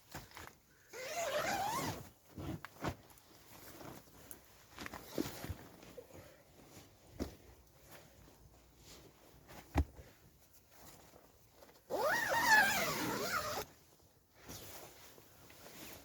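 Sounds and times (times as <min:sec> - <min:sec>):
zip being pulled: 0:01.0 - 0:02.0, 0:11.9 - 0:13.7.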